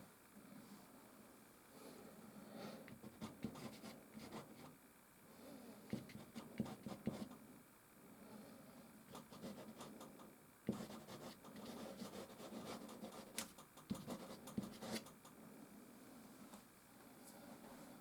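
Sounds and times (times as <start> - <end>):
pastel stick scratching canvas: 2.9 - 4.7, 5.9 - 7.4, 10.7 - 15.2.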